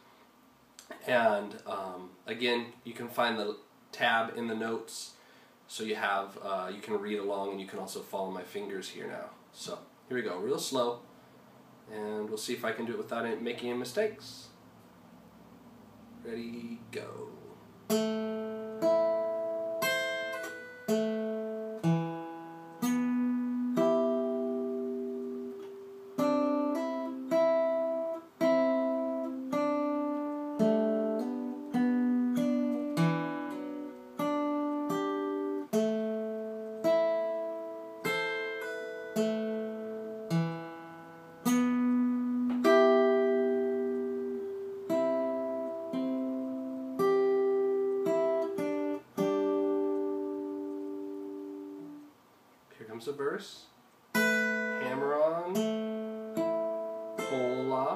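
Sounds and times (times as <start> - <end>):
acoustic guitar picked slowly: 14.6 - 52.2, 54.0 - 57.9.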